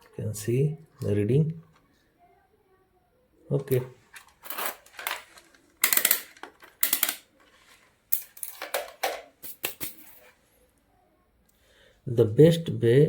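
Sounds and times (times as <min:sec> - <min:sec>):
rustles and clatters of small parts: 0:03.6 - 0:10.7.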